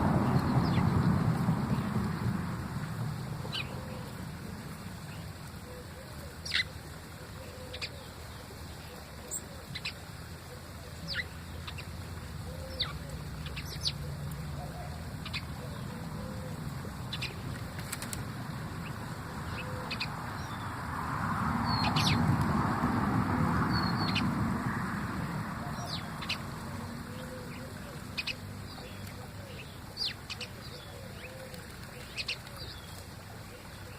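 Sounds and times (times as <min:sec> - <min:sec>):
broad rushing noise: 0:00.0 - 0:07.2, 0:10.0 - 0:33.9
small birds chirping: 0:11.0 - 0:20.8, 0:25.7 - 0:33.9.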